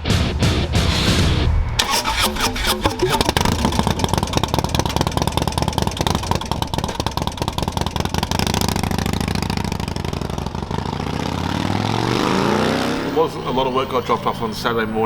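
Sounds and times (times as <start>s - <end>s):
motorcycle engine idling: 1.7s - 12.0s.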